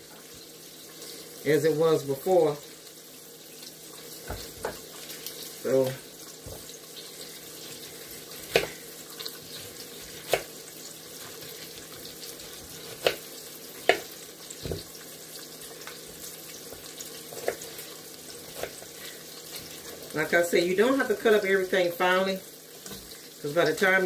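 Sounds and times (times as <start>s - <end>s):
knife chopping on cutting board: 4.2s - 4.9s, 8.3s - 8.8s, 9.5s - 10.5s, 11.2s - 14.9s, 16.7s - 17.8s, 18.5s - 18.8s.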